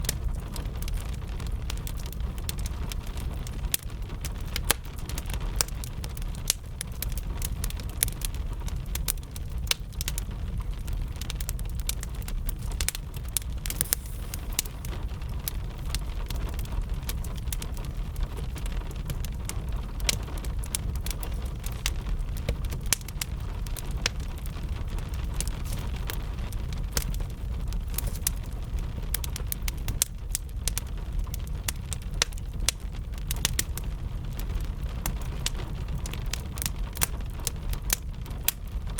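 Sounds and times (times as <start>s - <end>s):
gentle rain: 0.0s - 38.9s
wood fire crackling and popping: 0.0s - 38.9s
low rumble: 13.2s - 28.7s.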